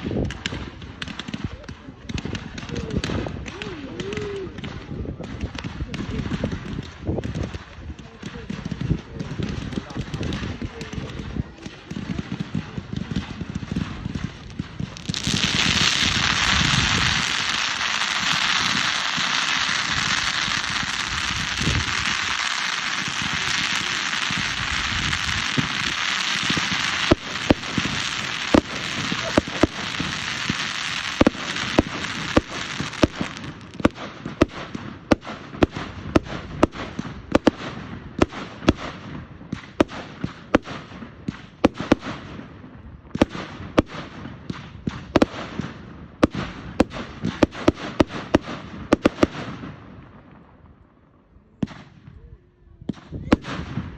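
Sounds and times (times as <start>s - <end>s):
firework cracks and bangs: 0.0s - 50.4s, 52.9s - 53.9s
fireworks fizzing hiss: 14.7s - 36.7s.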